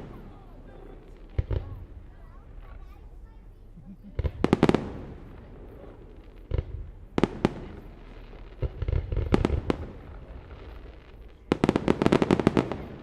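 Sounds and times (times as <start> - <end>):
crackling fireworks reports: 0.0 - 13.0
fireworks bursting with bangs: 0.0 - 13.0.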